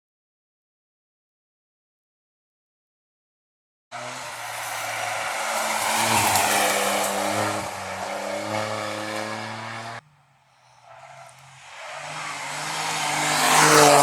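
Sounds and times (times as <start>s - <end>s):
rally car engine driving hard: 4.0s - 10.0s, 10.8s - 14.0s.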